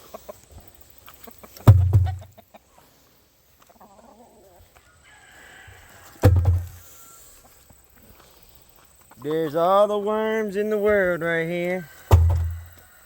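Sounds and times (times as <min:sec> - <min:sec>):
chickens clucking: 0:00.0 - 0:08.1
loud sudden thumps: 0:01.7 - 0:02.3, 0:06.2 - 0:06.8, 0:12.1 - 0:12.7.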